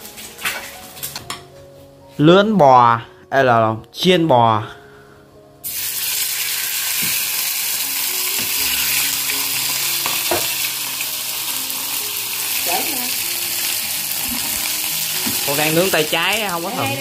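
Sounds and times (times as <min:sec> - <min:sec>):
meat sizzling in hot oil: 0:05.6 - 0:17.0.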